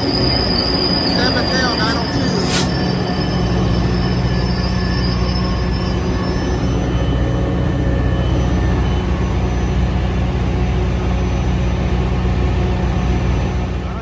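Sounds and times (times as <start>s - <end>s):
high wheel squeal: 0.0s - 9.8s
diesel locomotive engine drone: 0.0s - 14.0s.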